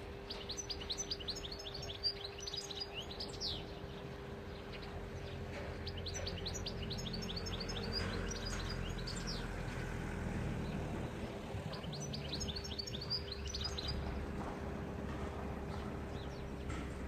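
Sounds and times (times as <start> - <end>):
bird twittering song: 0.0 - 17.0
steady low hum: 0.0 - 17.0.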